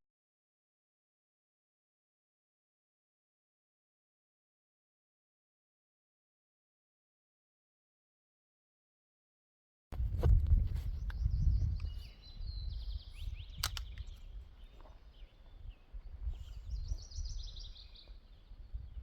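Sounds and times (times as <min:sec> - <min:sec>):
low rumble of wind: 0:09.9 - 0:19.0
small birds chirping: 0:10.2 - 0:19.0
sharp click: 0:13.5 - 0:14.2.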